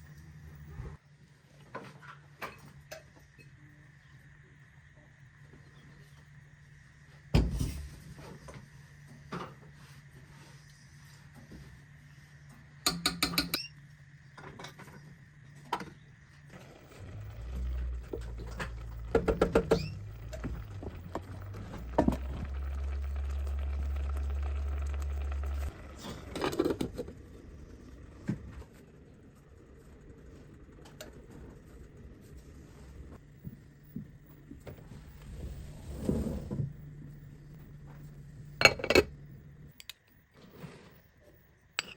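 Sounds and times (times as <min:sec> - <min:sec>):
low steady hum: 0:02.4 - 0:41.9
cookware and utensils clattering: 0:38.6 - 0:39.2.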